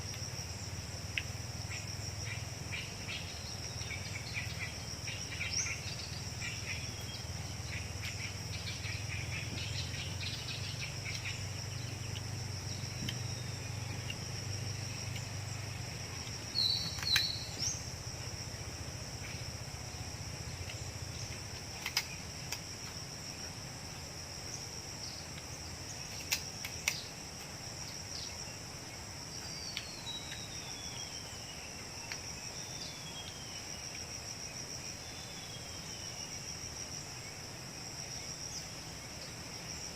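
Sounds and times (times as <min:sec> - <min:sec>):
crickets chirping: 0:00.0 - 0:39.9
bird chirps: 0:16.5 - 0:17.9
falling whistled bird calls: 0:16.5 - 0:17.9.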